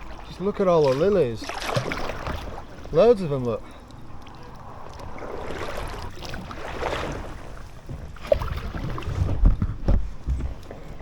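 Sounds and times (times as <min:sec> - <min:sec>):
kayak paddle splashing: 0:00.0 - 0:11.0.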